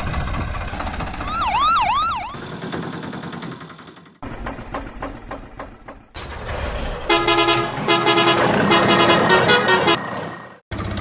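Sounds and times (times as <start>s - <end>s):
engine running: 0.0s - 11.0s
siren wailing: 1.2s - 2.4s.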